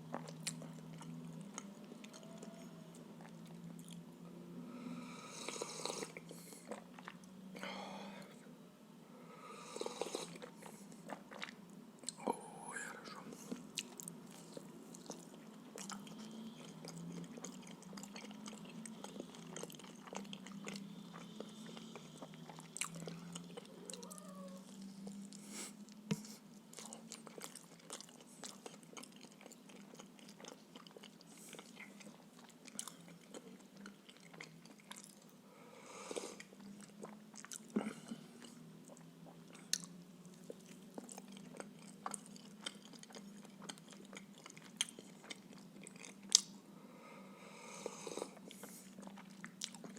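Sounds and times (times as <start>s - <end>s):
chewing and biting: 0.0s - 2.6s, 13.3s - 35.3s, 36.4s - 46.5s, 48.2s - 49.9s.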